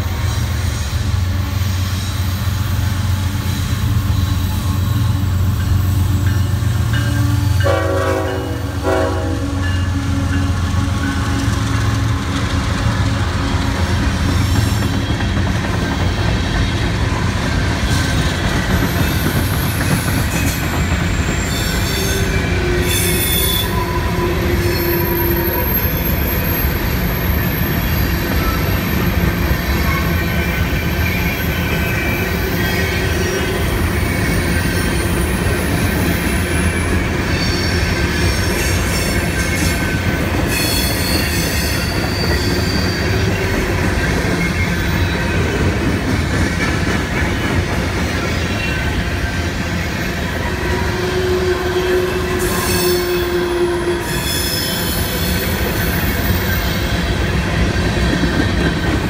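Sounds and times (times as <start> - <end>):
train wheels rumbling on rail: 0.0 - 59.0
high-pitched wheel squeal: 18.9 - 29.0, 40.5 - 43.6, 50.8 - 57.2.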